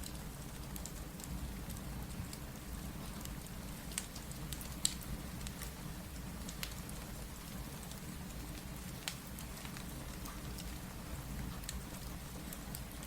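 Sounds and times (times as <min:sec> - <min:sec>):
crackling wood fire: 0:00.0 - 0:13.0
steady rain: 0:00.0 - 0:13.0
fire popping: 0:03.2 - 0:05.8, 0:06.4 - 0:13.0.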